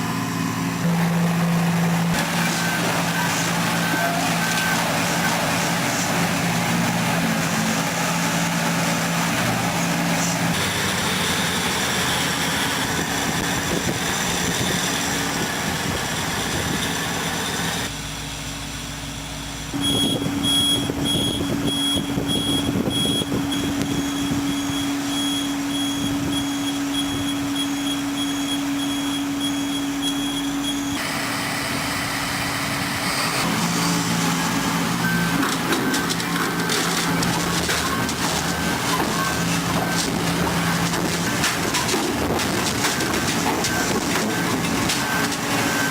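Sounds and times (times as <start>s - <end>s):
heavy construction machinery running: 0.0s - 45.9s
high-pitched repeating beep: 19.8s - 31.0s.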